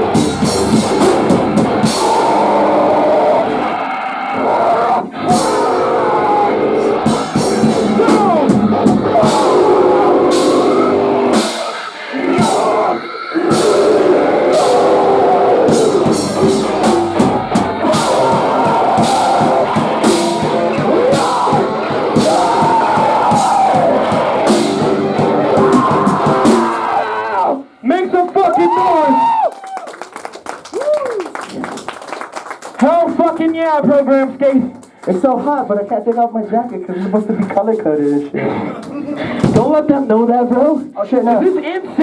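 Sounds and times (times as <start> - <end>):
band playing live: 0.0 - 3.6, 5.2 - 27.0
person singing: 0.0 - 3.7, 4.4 - 27.4.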